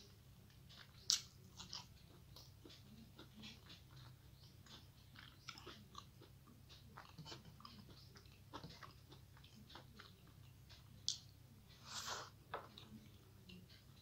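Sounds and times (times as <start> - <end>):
soft chewing and mouth clicks: 0.0 - 14.0.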